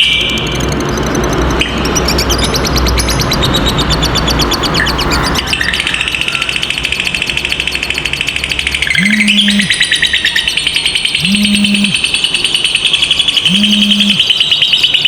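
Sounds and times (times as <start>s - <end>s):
lovebird rapid high chatter: 4.1s - 12.2s, 13.3s - 14.7s
short low hum: 8.9s - 9.8s, 11.2s - 12.0s, 13.5s - 14.2s.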